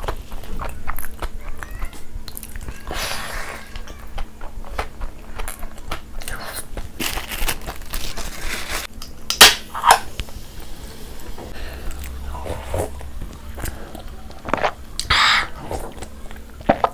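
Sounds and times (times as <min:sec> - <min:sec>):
chewing and crunching: 0:00.0 - 0:08.9, 0:11.7 - 0:16.9
wet mouth sounds: 0:11.8 - 0:16.9.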